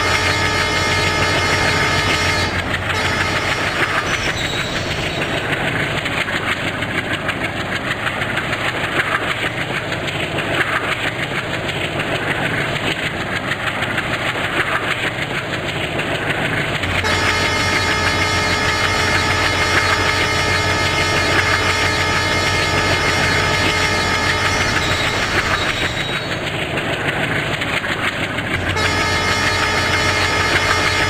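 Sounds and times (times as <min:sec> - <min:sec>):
steady engine hum: 0:00.0 - 0:31.0
train wheels clattering: 0:00.0 - 0:31.0.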